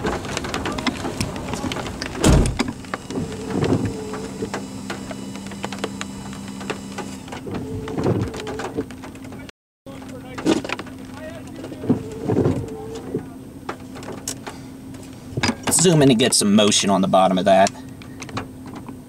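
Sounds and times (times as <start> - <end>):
steady low hum: 0.0 - 19.0
heavy thump: 2.2 - 5.0.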